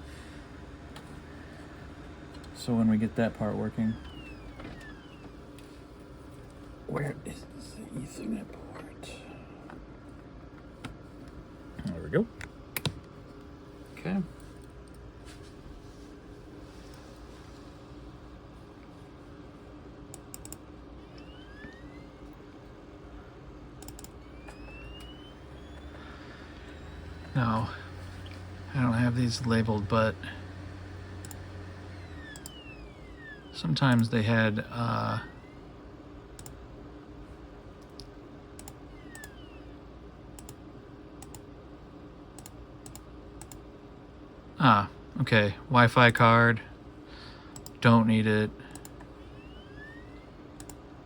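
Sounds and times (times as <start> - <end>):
faint rising whines: 0.0 - 12.3, 13.4 - 37.5, 38.6 - 40.3, 46.2 - 51.0
low hum: 13.4 - 40.6
laptop keys clicking: 23.8 - 25.1.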